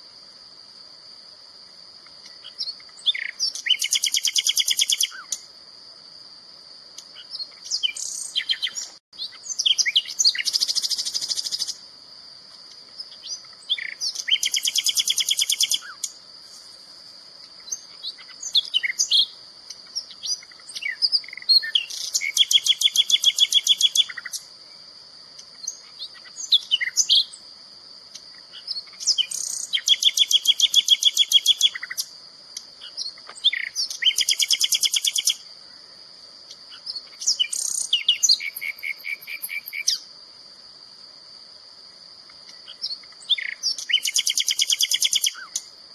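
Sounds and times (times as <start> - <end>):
bird chirps: 2.2 - 5.4, 7.0 - 11.8, 13.0 - 16.7, 17.6 - 24.5, 25.6 - 27.4, 28.1 - 32.1, 32.8 - 35.4, 36.7 - 40.0, 42.5 - 45.7
songbird buzzy trills: 12.7 - 35.5, 36.4 - 40.1, 42.4 - 45.7.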